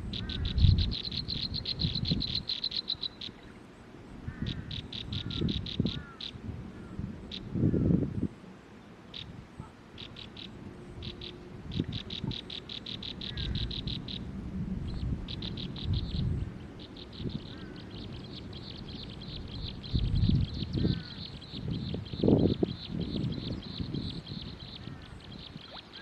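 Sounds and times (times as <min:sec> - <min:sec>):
bird chirping rapidly: 0:00.1 - 0:03.4, 0:10.0 - 0:14.2, 0:14.9 - 0:26.0.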